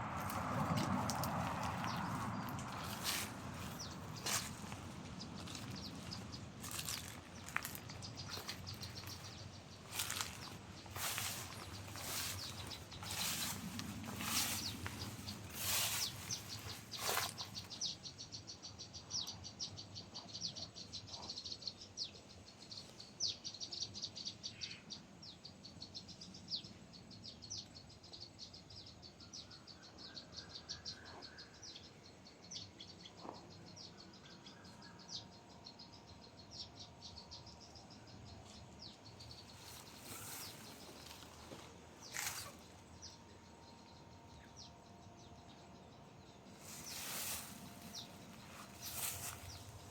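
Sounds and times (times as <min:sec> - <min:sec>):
soft rustling: 0:05.4 - 0:17.8, 0:39.4 - 0:42.9, 0:46.6 - 0:49.9.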